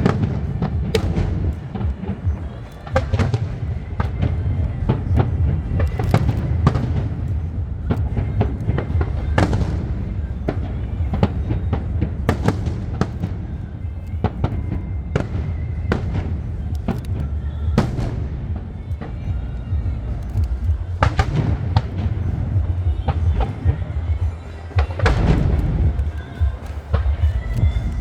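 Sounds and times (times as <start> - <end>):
fireworks bangs and cracks: 0.0 - 28.0.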